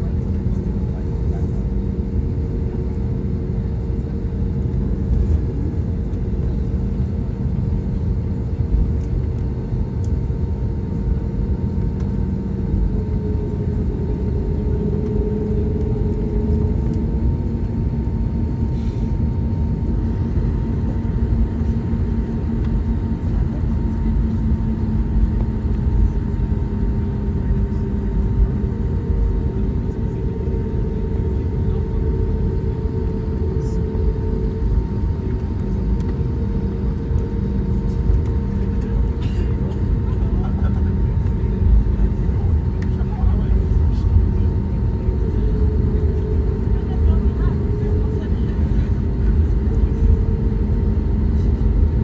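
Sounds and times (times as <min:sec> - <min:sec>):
aircraft cabin low rumble: 0:00.0 - 0:52.0
humming engine tones: 0:00.0 - 0:52.0.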